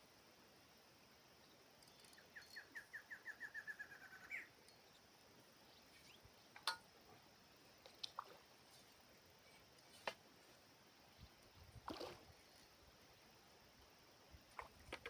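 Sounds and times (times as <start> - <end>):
bird singing: 1.4 - 6.7.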